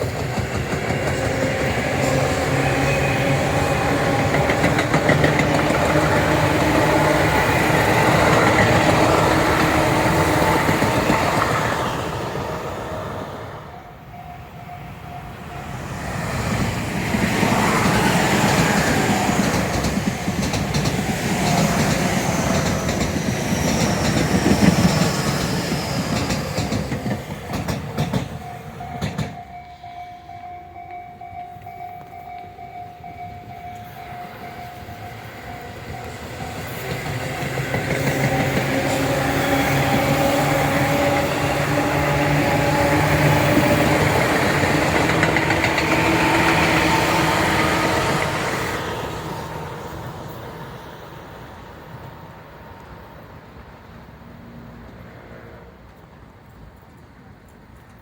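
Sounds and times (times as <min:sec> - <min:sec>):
train wheels clattering on rails: 0:00.0 - 0:12.5, 0:16.0 - 0:29.7, 0:30.7 - 0:50.1.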